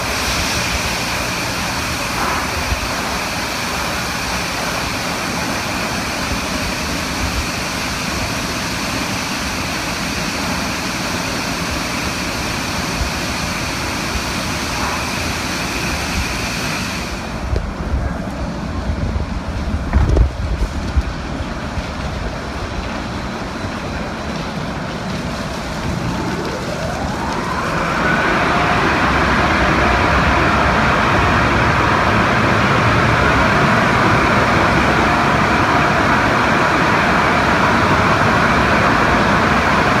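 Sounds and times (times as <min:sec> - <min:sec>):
car wash machinery rushing: 0:00.0 - 0:40.0
rising whine: 0:23.5 - 0:40.0.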